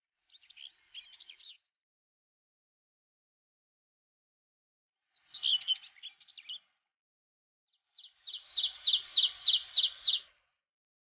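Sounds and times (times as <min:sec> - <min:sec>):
songbird singing trill: 0:08.0 - 0:10.3.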